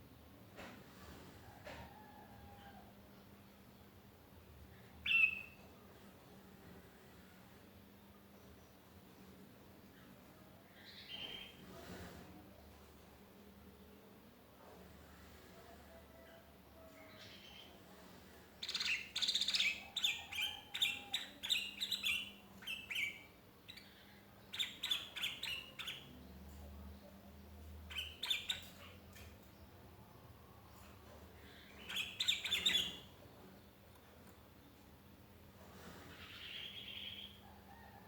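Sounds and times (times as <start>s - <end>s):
bird chirping: 18.6s - 29.0s, 31.4s - 33.6s, 36.2s - 37.5s.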